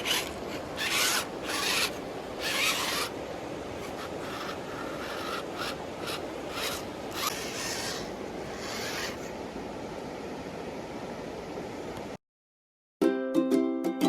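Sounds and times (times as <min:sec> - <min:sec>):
rasping scrapes: 0:00.0 - 0:09.3
toy car driving on dirt: 0:00.0 - 0:09.3.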